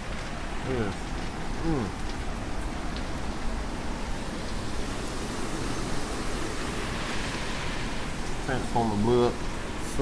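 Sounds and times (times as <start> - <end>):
wind and rain behind glass door: 0.0 - 10.0.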